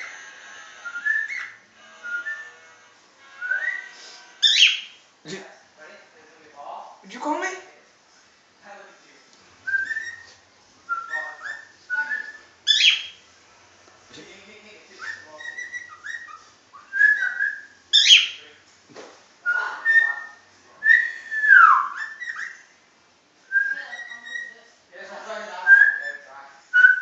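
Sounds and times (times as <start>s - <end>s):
pet bird whistling and chattering: 0.9s - 1.6s, 3.5s - 5.0s, 9.7s - 10.3s, 11.0s - 13.2s, 15.0s - 18.4s, 19.5s - 22.6s, 23.6s - 24.6s
bird squawks: 3.4s - 5.0s, 11.2s - 13.2s, 15.1s - 18.4s.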